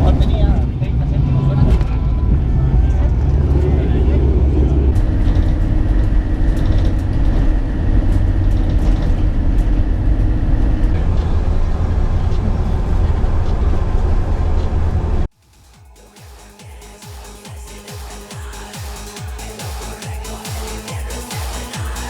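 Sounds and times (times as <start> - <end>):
steady low tones: 0.0 - 22.0
aircraft cabin engine drone: 1.8 - 15.3.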